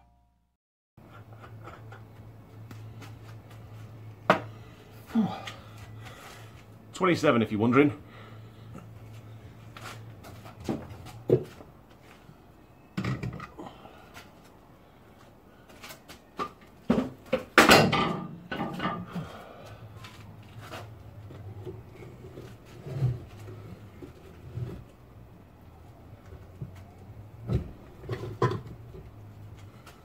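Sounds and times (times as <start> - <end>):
hand tools and metal parts clanking: 15.7 - 24.4.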